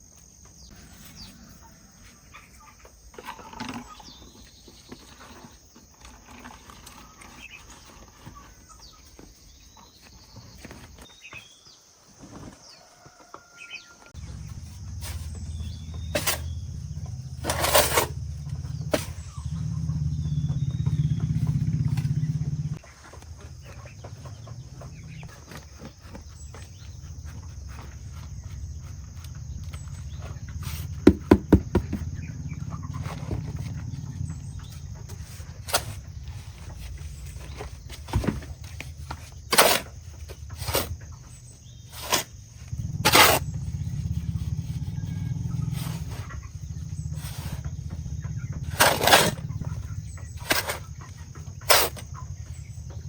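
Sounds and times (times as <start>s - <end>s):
faint bird chirps: 12.4s - 31.0s
sharp knocks and clicks: 30.9s - 32.2s.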